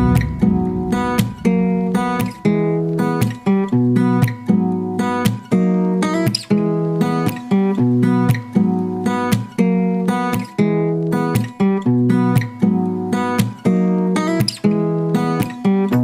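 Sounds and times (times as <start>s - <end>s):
acoustic guitar strumming chords: 0.0s - 6.0s.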